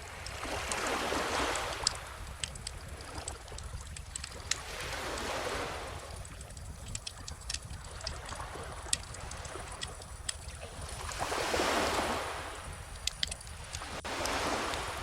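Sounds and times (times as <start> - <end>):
wood fire crackling: 1.6 - 5.3, 6.0 - 11.1, 12.8 - 14.1
ocean waves washing in: 4.4 - 10.1, 10.8 - 15.0.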